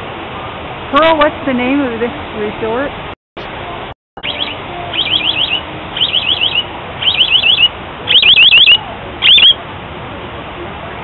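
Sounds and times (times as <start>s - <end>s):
bird warbling calls: 4.2s - 9.6s.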